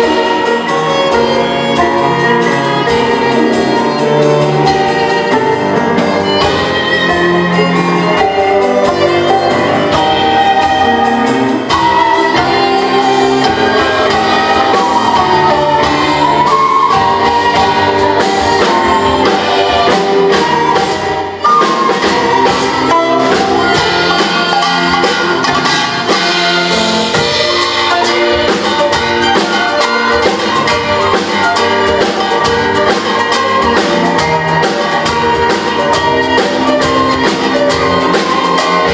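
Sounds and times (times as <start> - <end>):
steady percussion beat: 0.0 - 38.9
traditional instruments with strings: 0.0 - 38.9.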